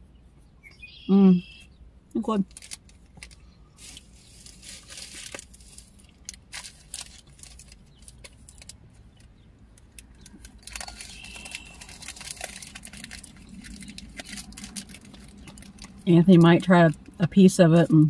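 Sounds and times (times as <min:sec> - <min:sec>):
low steady hum: 0:00.0 - 0:18.0
sharp clicks and crackles: 0:02.2 - 0:17.2
chewing popping candy: 0:10.0 - 0:16.4.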